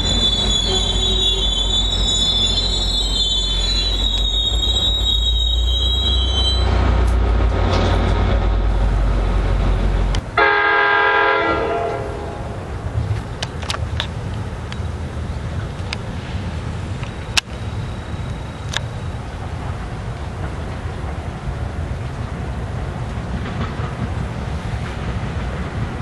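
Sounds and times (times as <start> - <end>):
high-pitched wheel squeal: 0.0 - 7.0
train rumbling past: 0.0 - 26.0
locomotive horn blast: 10.4 - 12.7.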